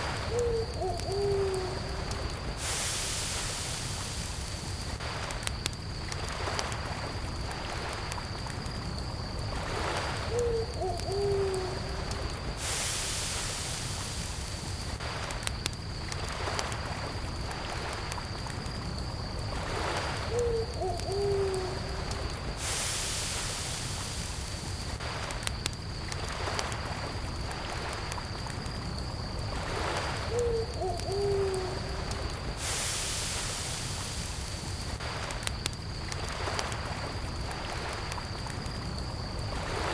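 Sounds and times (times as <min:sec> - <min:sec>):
crickets trilling: 0:00.0 - 0:39.9
campfire crackling and popping: 0:03.8 - 0:10.1, 0:13.9 - 0:20.1, 0:23.8 - 0:30.2, 0:33.2 - 0:39.9.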